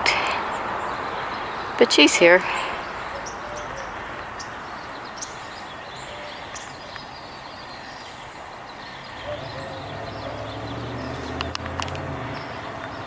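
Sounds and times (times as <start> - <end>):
outdoor background noise: 0.0 - 13.0
low engine rumble: 9.1 - 13.0.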